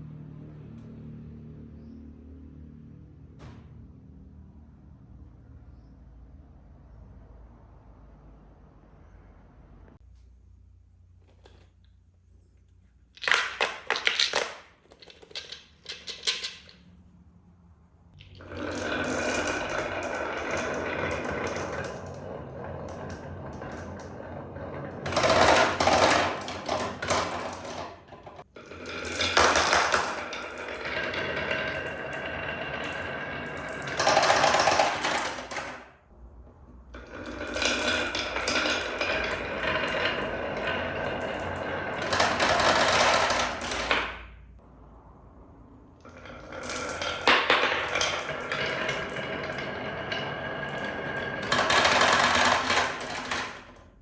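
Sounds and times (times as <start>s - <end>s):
marbles clattering: 13.2s - 16.8s, 18.2s - 35.9s, 37.0s - 44.3s, 46.0s - 54.0s
marbles rattling down tracks: 13.2s - 16.8s, 18.2s - 35.9s, 37.0s - 44.2s, 46.1s - 54.0s.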